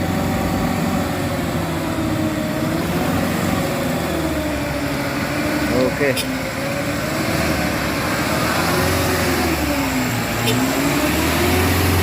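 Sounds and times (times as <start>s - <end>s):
truck diesel engine pulling uphill: 0.0s - 12.0s.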